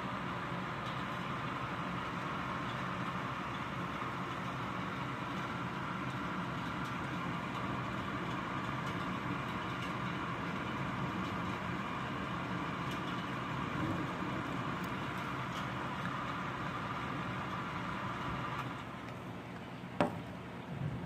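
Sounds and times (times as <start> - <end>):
steady rain: 0.2 - 18.8.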